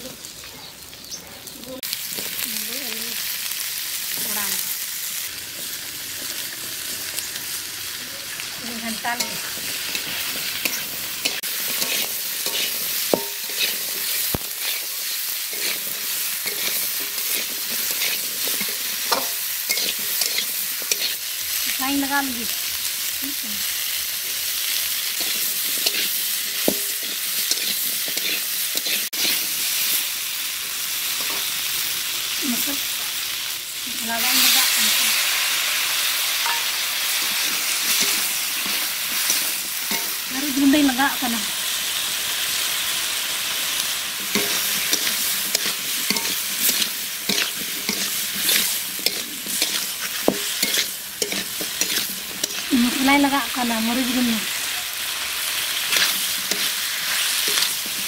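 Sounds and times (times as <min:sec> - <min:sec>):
vegetables sizzling in oil: 0:00.0 - 0:58.0
metal spatula scraping pan: 0:09.0 - 0:21.3, 0:24.8 - 0:29.5, 0:44.2 - 0:52.9, 0:55.8 - 0:58.0.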